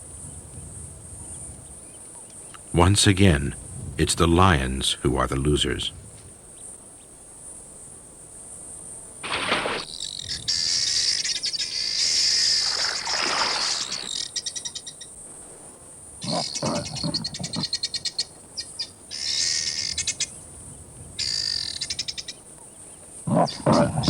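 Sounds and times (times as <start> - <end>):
insects buzzing: 6.4 - 24.0
brief swishes: 9.2 - 9.9
cricket-like trill: 9.2 - 15.0, 16.2 - 20.4, 21.2 - 22.4.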